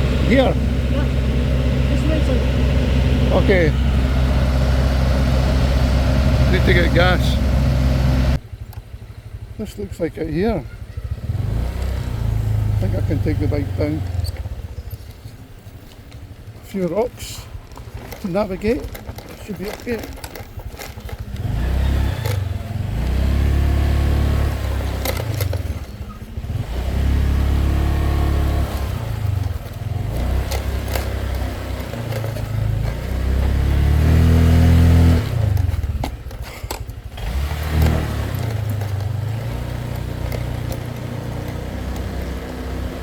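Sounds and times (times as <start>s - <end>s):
scooter engine revving: 0.0s - 43.0s
knocks and clatters over rocks: 14.0s - 23.2s, 24.6s - 26.4s, 28.8s - 33.9s, 35.3s - 43.0s.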